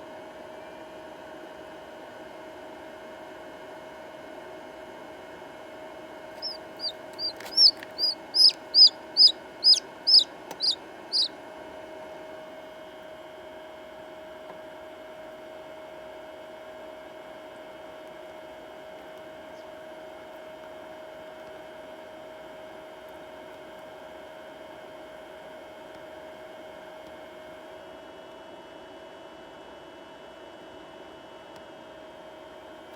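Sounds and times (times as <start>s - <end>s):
steady background hum: 4.3s - 12.5s
chick peeping: 6.4s - 11.3s.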